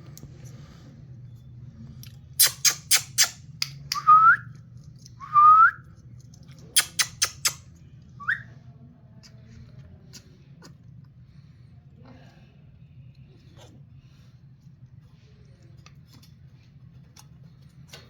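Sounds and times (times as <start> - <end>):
parrot sharp clicks: 6.8 - 7.6
parrot whistling: 6.8 - 7.6, 8.2 - 8.5.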